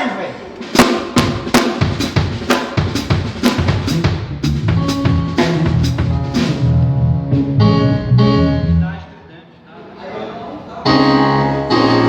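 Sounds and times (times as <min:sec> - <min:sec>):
snare and cymbal hits: 0:00.6 - 0:06.7
bass drum: 0:00.6 - 0:07.8
low bass notes: 0:03.5 - 0:09.1, 0:10.9 - 0:12.0.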